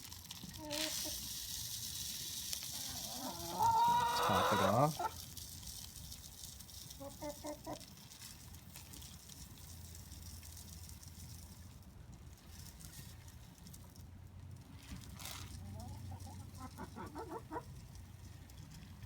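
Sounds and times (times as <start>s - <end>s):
hens clucking: 2.7s - 5.2s, 7.0s - 7.9s, 15.5s - 17.8s.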